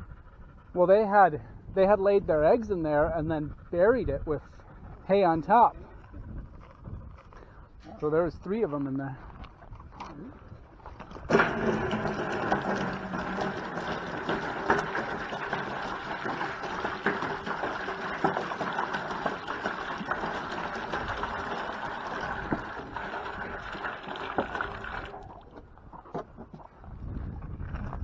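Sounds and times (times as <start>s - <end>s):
water pouring into a container: 11.3s - 25.6s.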